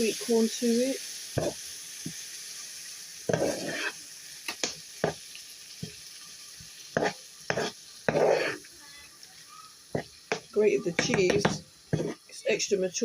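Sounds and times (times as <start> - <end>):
food sizzling in a frying pan: 0.0 - 13.0
utensil scraping and knocking pan: 3.3 - 4.0, 7.0 - 8.6, 10.0 - 12.2.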